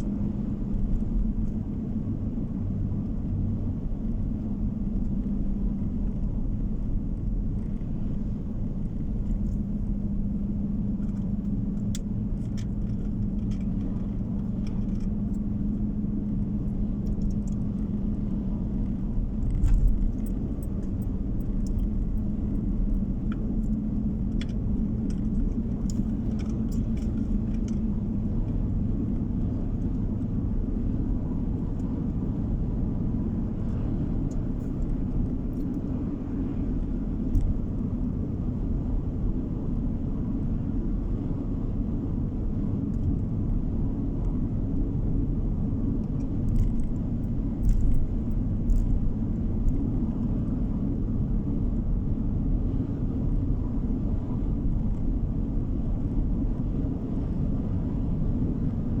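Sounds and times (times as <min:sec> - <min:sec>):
car engine and road noise: 0:00.0 - 0:59.0
small clicks and rattles: 0:11.0 - 0:15.5, 0:16.9 - 0:18.2, 0:18.9 - 0:27.9, 0:46.0 - 0:50.2.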